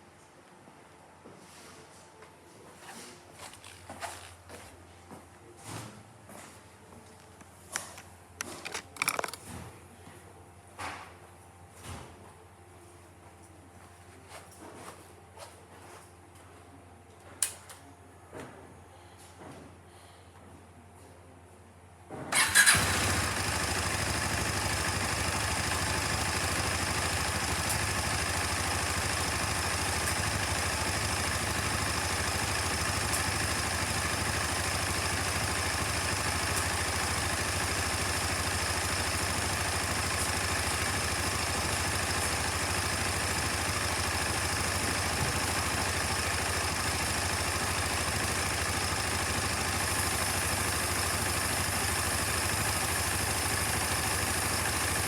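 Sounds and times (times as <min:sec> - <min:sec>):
motorcycle engine idling: 0:22.3 - 0:55.0.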